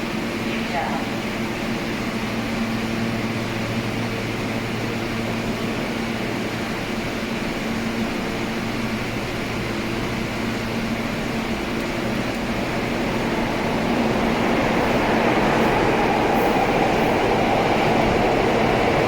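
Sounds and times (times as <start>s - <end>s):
mechanical hum and rushing air: 6.8s - 19.0s.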